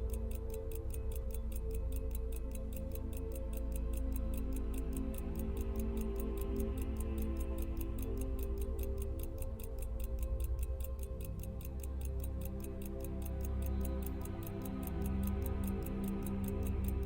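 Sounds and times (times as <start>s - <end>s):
background music: 0.0s - 17.0s
pocket watch ticking: 0.0s - 17.0s.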